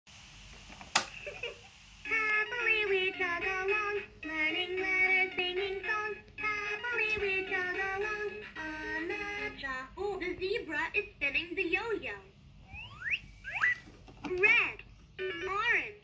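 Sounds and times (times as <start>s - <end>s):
electronic children's tune: 2.1s - 9.6s, 12.6s - 13.8s.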